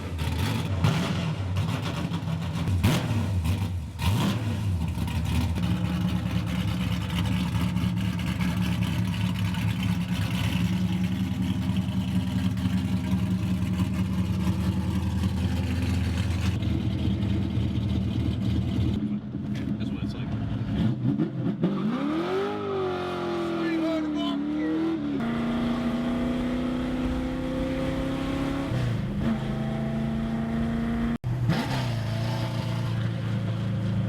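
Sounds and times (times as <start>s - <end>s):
car engine idling: 4.6s - 20.4s.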